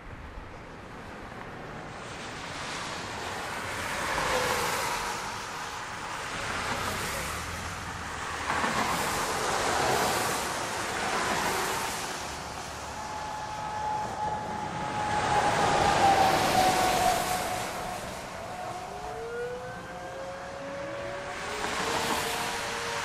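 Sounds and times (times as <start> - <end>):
strong wind on microphone: 12.0 - 18.8.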